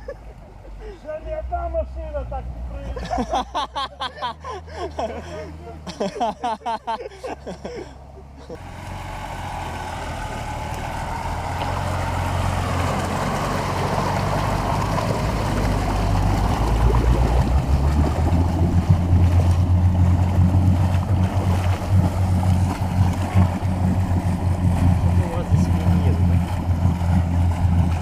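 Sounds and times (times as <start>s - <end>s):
engine running under load: 0.0s - 28.0s
water churning and splashing: 8.5s - 28.0s.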